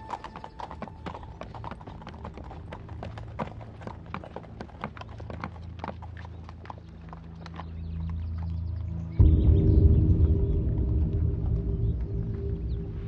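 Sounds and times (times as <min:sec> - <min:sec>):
horse hooves clip-clopping: 0:00.0 - 0:09.1.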